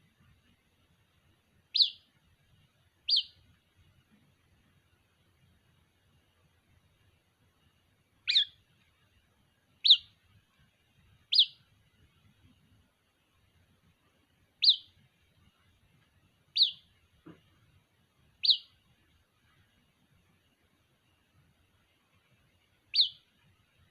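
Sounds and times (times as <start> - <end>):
bird chick chirping: 1.7 - 2.1, 3.0 - 3.4, 8.2 - 8.6, 9.8 - 10.2, 11.3 - 11.7, 14.6 - 15.0, 16.5 - 16.9, 18.4 - 18.8, 22.9 - 23.3.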